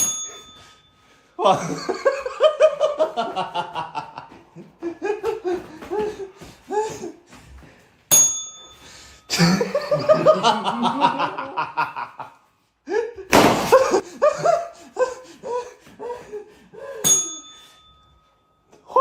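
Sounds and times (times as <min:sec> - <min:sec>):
people laughing hard: 0:01.4 - 0:07.2, 0:09.3 - 0:17.0.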